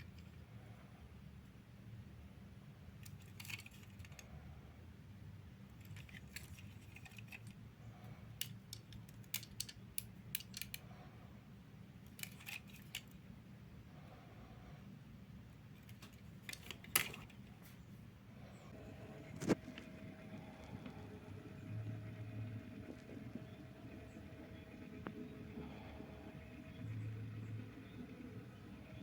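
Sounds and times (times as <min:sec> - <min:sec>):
faint low hum: 0:00.0 - 0:29.0
small hard objects clicking: 0:08.4 - 0:10.8.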